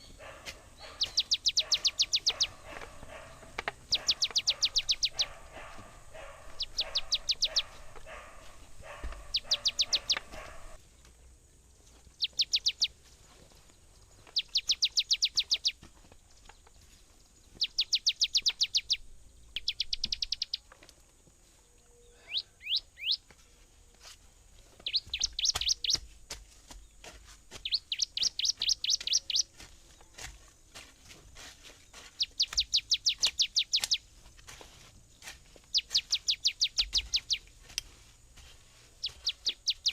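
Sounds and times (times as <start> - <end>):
songbird singing high chirps: 0.0 - 10.8, 11.7 - 20.7, 21.7 - 23.3, 24.7 - 26.1, 26.8 - 30.2, 31.9 - 34.2, 35.1 - 38.0, 38.8 - 39.9.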